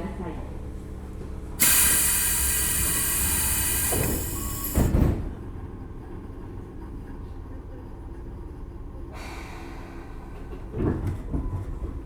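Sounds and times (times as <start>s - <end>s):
train doors thudding shut: 1.6s - 5.5s.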